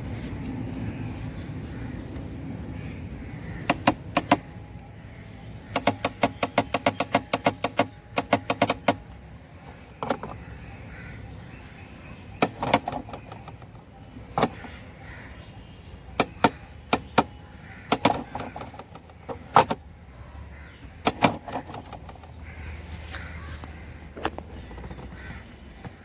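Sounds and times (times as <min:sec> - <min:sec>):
sharp knocks and clicks: 0:03.6 - 0:04.6, 0:05.6 - 0:09.2, 0:10.0 - 0:10.4, 0:12.4 - 0:13.8, 0:14.4 - 0:14.8, 0:16.2 - 0:19.8, 0:21.0 - 0:22.4.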